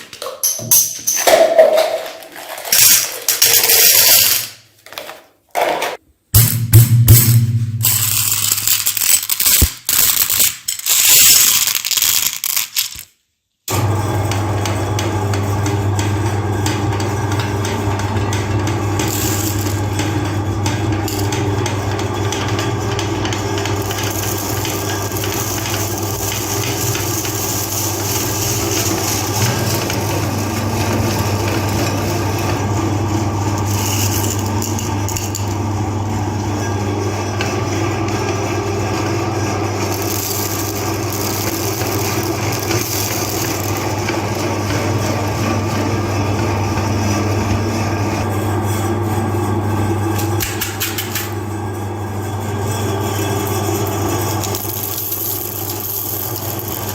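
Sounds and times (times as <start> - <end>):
candy clattering and crunching: 1.2 - 4.4, 8.0 - 13.2, 23.6 - 32.1, 39.8 - 44.4, 54.4 - 56.9
electric meat grinder humming: 13.7 - 56.9.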